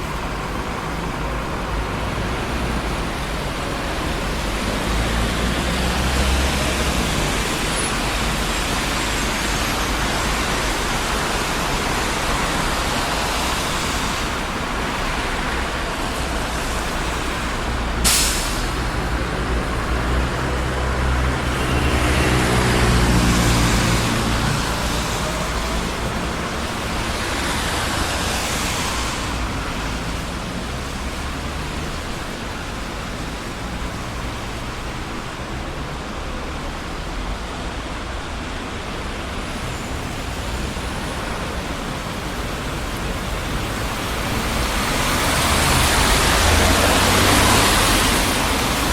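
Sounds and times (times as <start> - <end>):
busy street traffic: 0.0 - 48.9
vehicle passing close: 16.0 - 32.0, 42.4 - 48.9.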